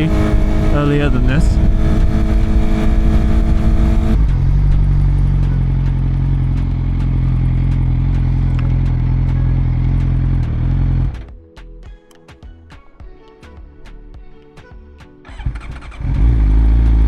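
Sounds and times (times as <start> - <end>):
motorcycle engine revving: 0.0 - 11.3, 15.3 - 17.0.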